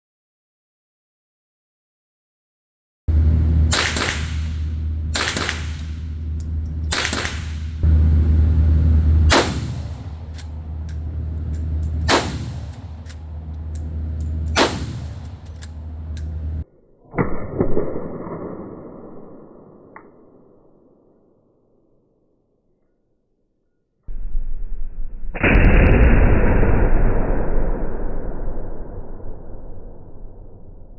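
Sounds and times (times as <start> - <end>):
steady low hum: 3.1 - 16.6
rifle shots cracking: 3.6 - 8.1, 8.7 - 16.6.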